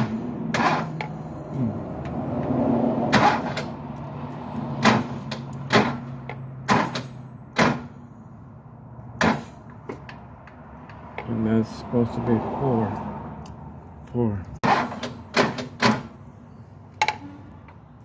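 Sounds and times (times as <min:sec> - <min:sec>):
sharp knocks and clicks: 0:04.8 - 0:07.9, 0:09.2 - 0:11.3, 0:14.6 - 0:16.2.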